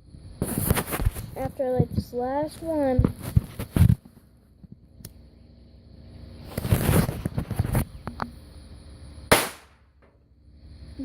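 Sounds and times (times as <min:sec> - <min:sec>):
firecrackers popping: 0:06.5 - 0:07.9, 0:09.3 - 0:10.1
firecracker bang: 0:09.3 - 0:10.1.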